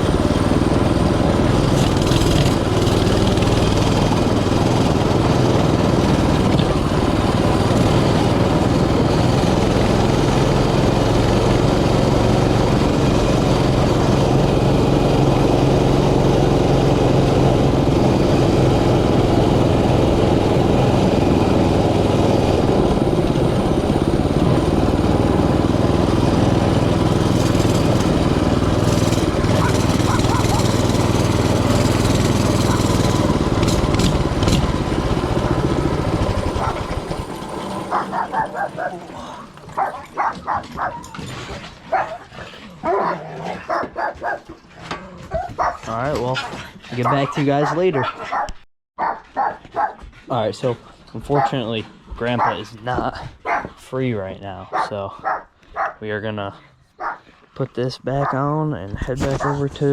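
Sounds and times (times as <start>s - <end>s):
small motorbike engine running: 0.0s - 42.1s, 51.2s - 53.6s, 58.1s - 59.9s.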